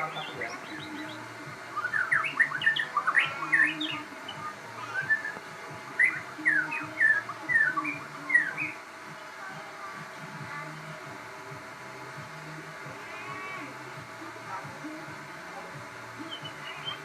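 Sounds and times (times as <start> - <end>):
bird singing whistled notes: 0.0 - 5.4, 6.0 - 8.8, 16.2 - 17.0.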